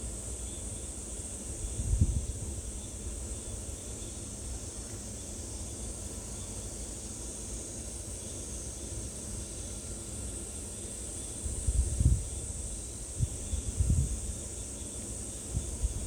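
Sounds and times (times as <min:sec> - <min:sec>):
insects droning: 0:00.0 - 0:16.0
wind rumbling on microphone: 0:01.7 - 0:02.6, 0:11.6 - 0:12.5, 0:13.2 - 0:14.4, 0:15.5 - 0:16.0.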